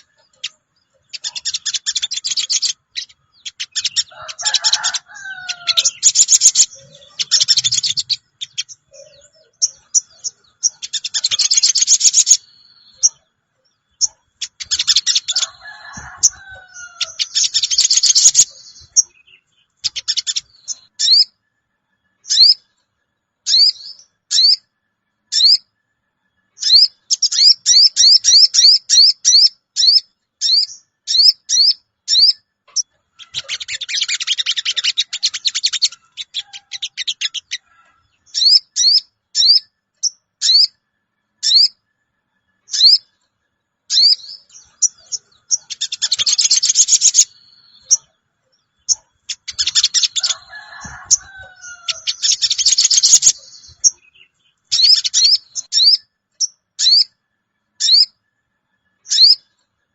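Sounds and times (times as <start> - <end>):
bird chattering: 0.0 - 13.2, 13.9 - 21.3, 26.6 - 40.7, 43.9 - 48.1, 48.8 - 57.1, 59.1 - 59.4
high bird calls: 0.0 - 21.4, 22.2 - 22.7, 23.4 - 24.7, 25.3 - 25.7, 26.6 - 40.8, 41.4 - 41.8, 42.6 - 43.2, 43.9 - 57.2, 57.8 - 58.2, 59.0 - 59.6.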